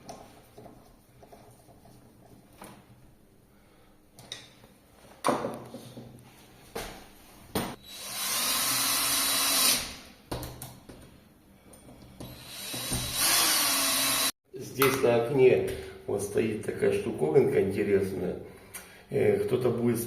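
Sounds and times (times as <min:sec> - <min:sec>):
cordless drill running: 0:07.8 - 0:09.9, 0:12.4 - 0:14.3.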